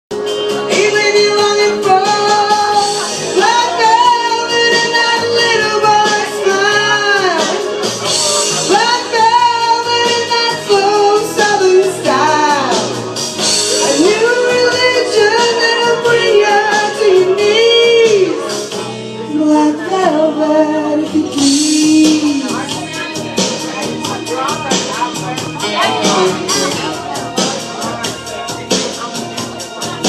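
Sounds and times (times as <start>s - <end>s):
instrumental accompaniment: 0.1s - 30.0s
woman singing: 0.6s - 7.7s, 8.6s - 13.1s, 13.7s - 18.6s, 19.2s - 23.1s, 25.6s - 27.1s.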